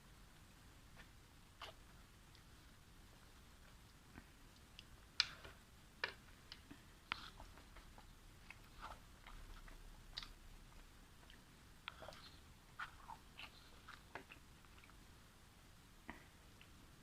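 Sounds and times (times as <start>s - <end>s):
chewing with wet mouth clicks: 1.0s - 2.5s, 3.7s - 15.0s.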